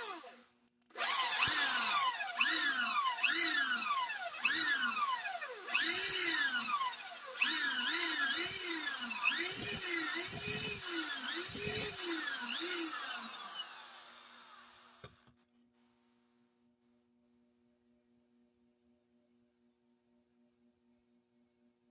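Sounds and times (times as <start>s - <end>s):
electric drill motor whine: 0.0s - 0.4s, 1.0s - 15.2s.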